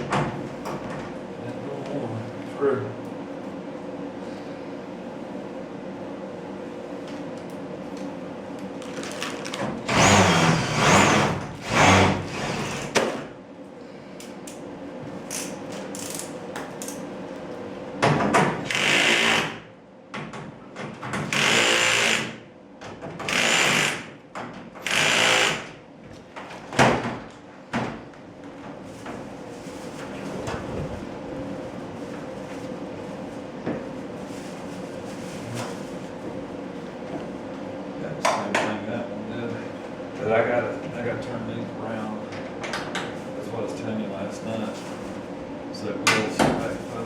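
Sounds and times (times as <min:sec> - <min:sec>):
steady low hum: 0:00.0 - 0:47.0
cordless screw gun driving screws: 0:24.8 - 0:25.6.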